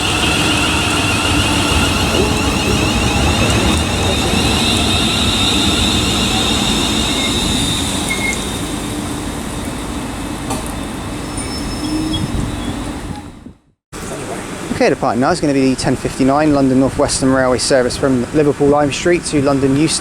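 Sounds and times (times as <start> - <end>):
high warbling whine: 0.0 - 10.4
electric train rumbling: 0.0 - 20.0.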